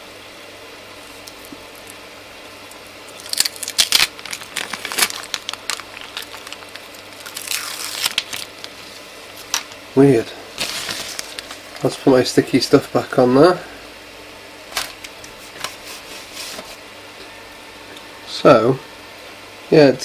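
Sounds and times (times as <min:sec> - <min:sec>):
tape peeling and crumpling: 0:03.1 - 0:09.8, 0:10.6 - 0:11.9.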